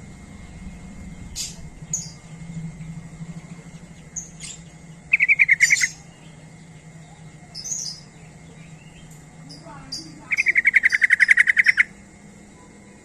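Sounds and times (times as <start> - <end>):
faint low hum: 0.0 - 13.0
bird chirping: 0.7 - 12.0
bird bubbling call: 3.8 - 6.1, 10.3 - 12.0.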